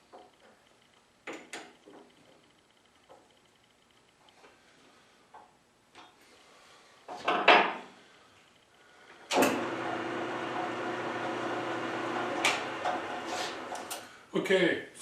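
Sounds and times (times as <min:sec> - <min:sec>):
mechanical hum: 0:00.0 - 0:07.2, 0:07.8 - 0:15.0.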